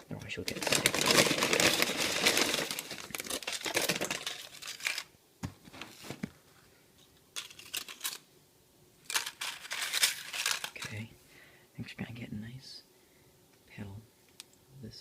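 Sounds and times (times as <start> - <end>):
snack packaging crinkling: 0.2 - 5.1, 7.4 - 8.2, 9.0 - 10.9.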